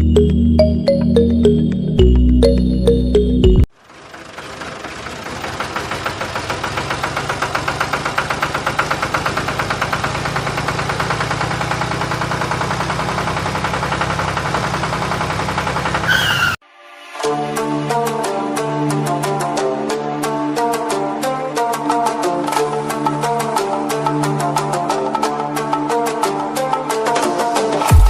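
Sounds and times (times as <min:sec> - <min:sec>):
small motor pulsing rattle: 0:03.8 - 0:16.1.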